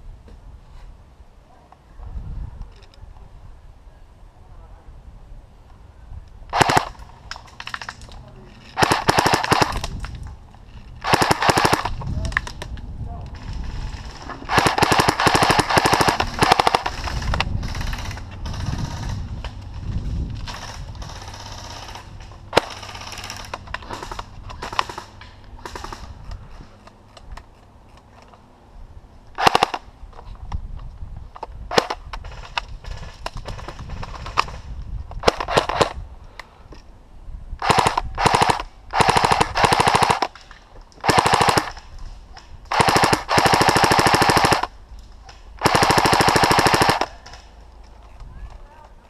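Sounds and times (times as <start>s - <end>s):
airsoft rifle firing: 6.5s - 7.0s, 8.8s - 10.0s, 11.0s - 12.0s, 14.0s - 19.2s, 29.4s - 29.8s, 37.6s - 40.4s, 41.0s - 41.8s, 42.7s - 44.7s, 45.6s - 47.5s.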